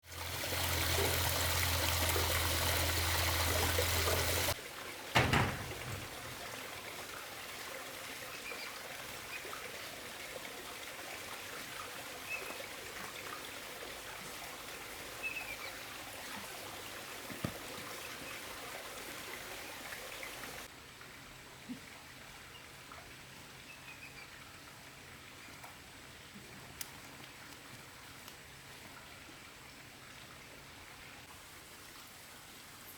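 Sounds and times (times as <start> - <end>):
water trickling: 0.0 - 20.7.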